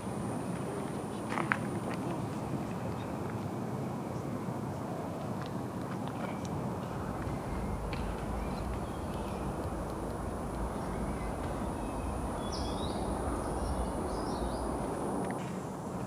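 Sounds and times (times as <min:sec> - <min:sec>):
low rumble: 0:06.8 - 0:15.3
bird chirps: 0:07.3 - 0:09.8, 0:10.6 - 0:14.8.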